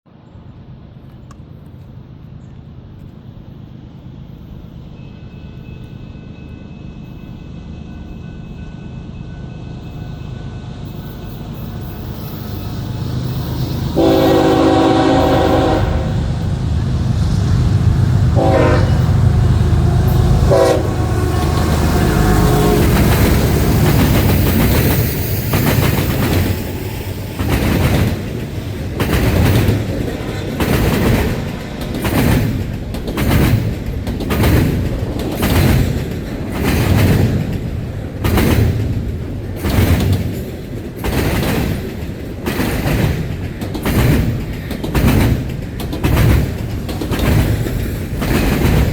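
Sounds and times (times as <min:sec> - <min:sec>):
locomotive heavy rumble: 0:11.4 - 0:48.9
wheels clacking over rail joints: 0:13.2 - 0:48.9
locomotive horn blasts: 0:14.0 - 0:16.4, 0:18.3 - 0:23.4.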